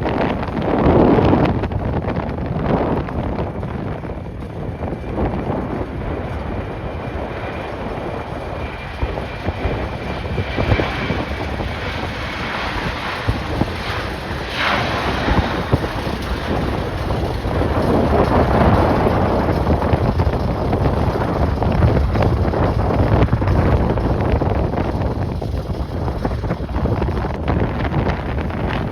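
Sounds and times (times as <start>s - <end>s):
faint engine whine: 0.0s - 28.9s
jet engines rushing: 0.0s - 28.9s
wind buffeting microphone: 0.0s - 28.9s.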